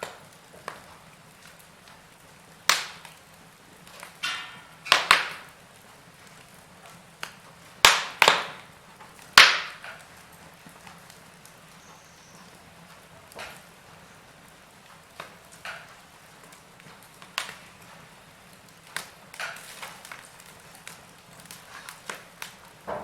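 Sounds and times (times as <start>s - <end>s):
log fire crackling: 0.0s - 23.0s.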